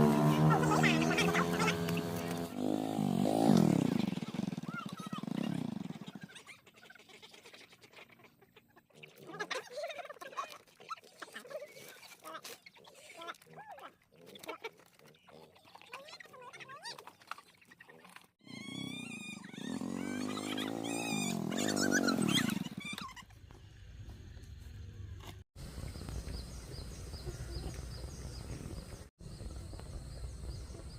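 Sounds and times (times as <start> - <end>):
farm animals calling: 0.0 - 2.5
drawn-out animal call: 0.0 - 2.6, 11.2 - 23.4.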